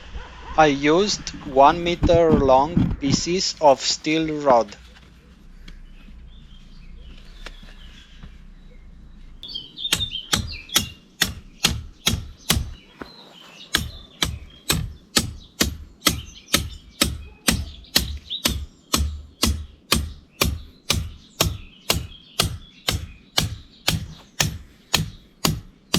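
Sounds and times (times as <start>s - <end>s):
faint birds chirping: 0.0s - 25.9s
hammer striking steel rod: 9.9s - 12.8s, 13.7s - 25.7s.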